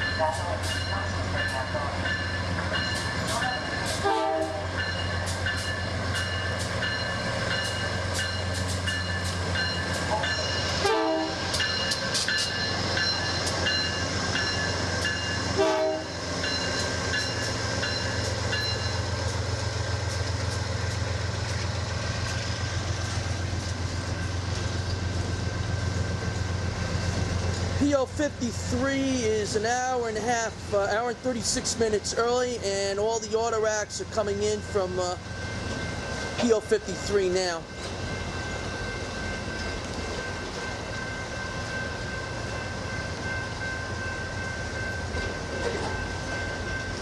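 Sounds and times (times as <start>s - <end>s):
train rumbling past: 0.0s - 47.0s.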